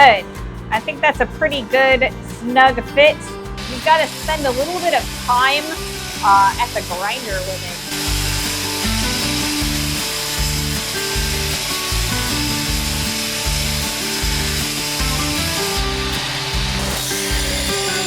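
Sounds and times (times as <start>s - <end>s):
background music with bass: 0.0s - 18.0s
grinder grinding steel: 3.6s - 18.0s.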